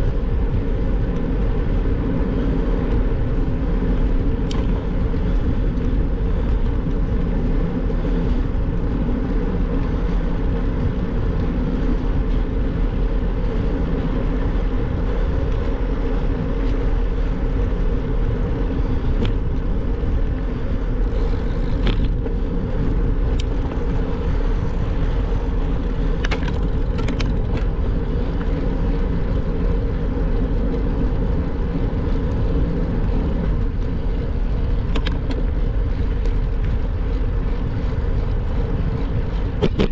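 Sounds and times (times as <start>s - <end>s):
bike road noise: 0.0s - 39.9s.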